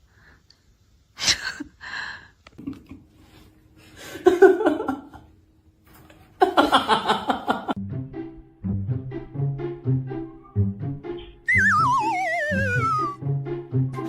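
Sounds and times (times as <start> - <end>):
person laughing: 11.5 - 13.2.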